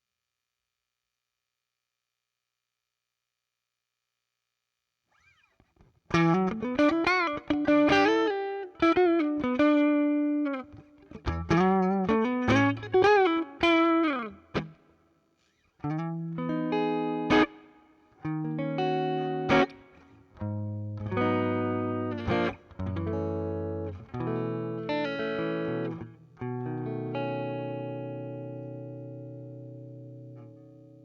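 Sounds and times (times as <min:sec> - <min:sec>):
electric guitar lead and chords: 0:06.1 - 0:14.8, 0:15.8 - 0:31.0.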